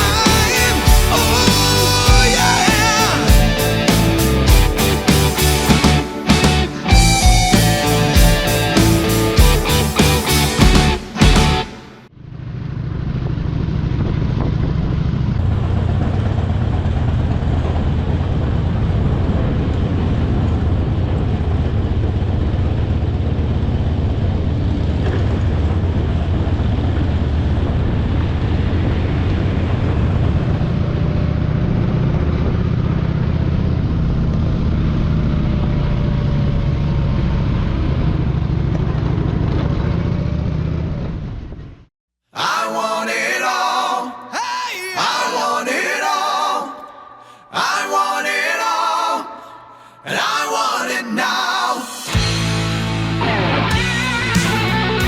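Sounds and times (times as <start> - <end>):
wind and road rush: 12.2 - 41.9.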